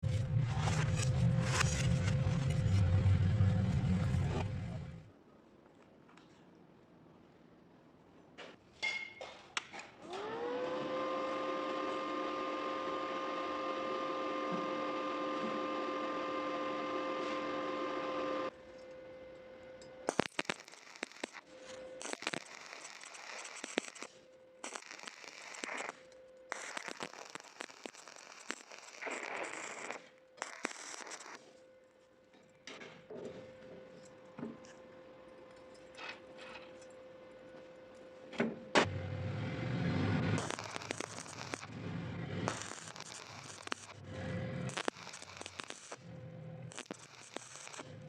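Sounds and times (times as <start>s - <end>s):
power tool motor whining: 10.0s - 18.5s, 39.9s - 48.0s
arc welding crackling: 20.0s - 31.5s, 39.8s - 48.0s.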